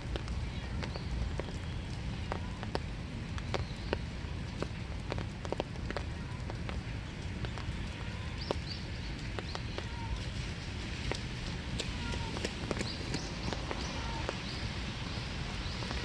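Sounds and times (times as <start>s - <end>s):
rain hiss in a wood: 0.0s - 16.0s
raindrops tapping surfaces: 0.0s - 16.0s.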